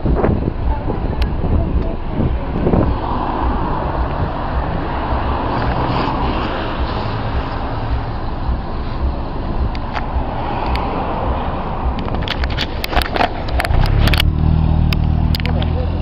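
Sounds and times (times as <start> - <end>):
bus diesel engine running: 6.7 - 16.0.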